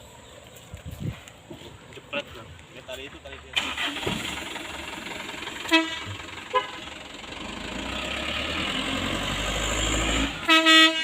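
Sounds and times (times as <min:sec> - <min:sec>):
vehicle engine running: 0:03.2 - 0:11.0
vehicle horn honking: 0:05.6 - 0:06.9, 0:10.4 - 0:11.0.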